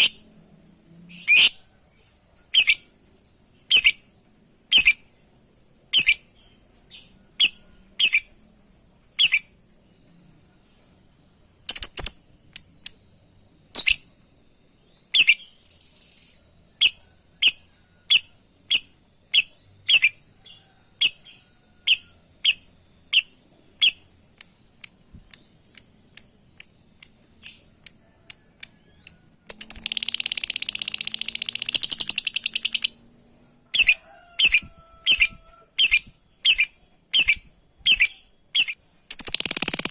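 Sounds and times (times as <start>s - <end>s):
bird chirping: 0.0s - 0.3s, 1.0s - 39.9s
bird chattering: 23.2s - 33.0s, 33.8s - 39.9s.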